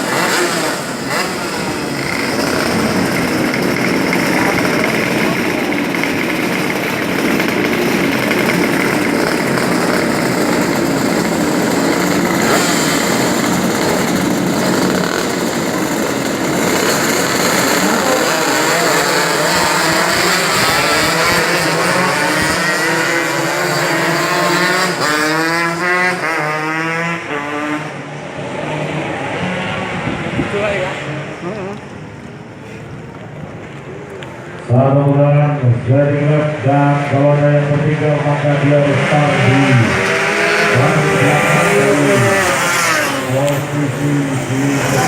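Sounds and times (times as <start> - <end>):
two-stroke motorcycles racing: 0.0 - 45.0.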